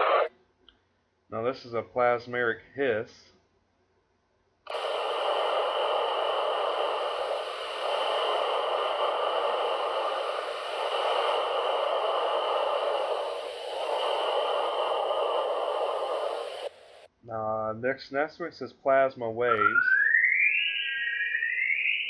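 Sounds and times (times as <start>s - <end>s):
static-like hiss: 0.0s - 0.3s, 4.7s - 17.1s.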